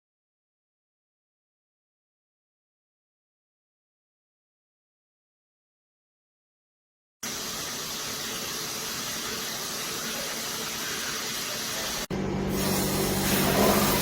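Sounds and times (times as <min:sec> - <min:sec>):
shower spraying water: 0:07.2 - 0:14.0.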